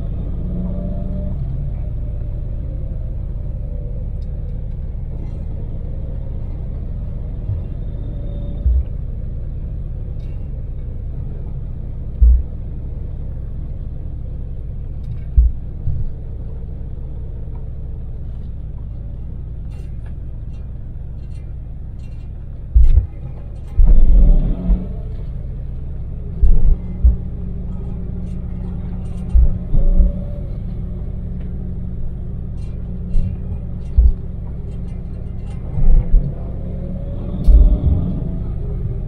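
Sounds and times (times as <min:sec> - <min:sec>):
engine and road rumble: 0:00.0 - 0:39.0
loud low thumps: 0:08.6 - 0:09.0, 0:12.2 - 0:12.7, 0:15.3 - 0:16.1, 0:22.7 - 0:25.3, 0:26.3 - 0:28.4, 0:29.1 - 0:32.1, 0:33.0 - 0:34.6, 0:35.7 - 0:38.4.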